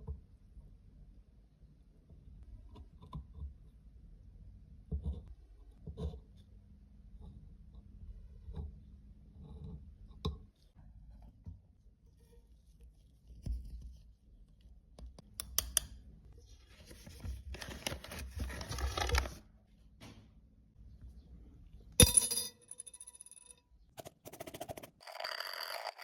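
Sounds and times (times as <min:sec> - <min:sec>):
scratchy rustling handling noise: 0:16.6 - 0:19.4.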